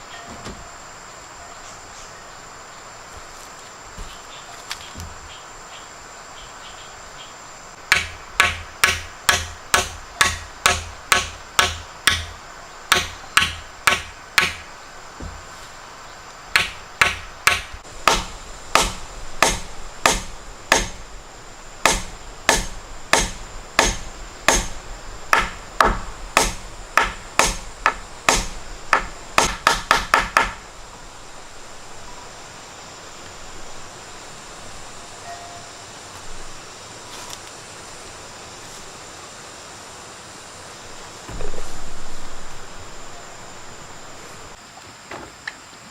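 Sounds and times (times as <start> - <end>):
chopping strikes: 7.9 - 12.3, 12.9 - 15.4, 16.5 - 21.0, 21.8 - 30.6, 41.3 - 44.0.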